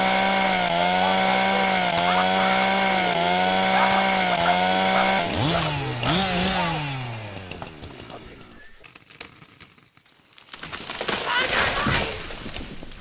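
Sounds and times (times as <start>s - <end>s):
chainsaw engine running: 0.0s - 9.7s.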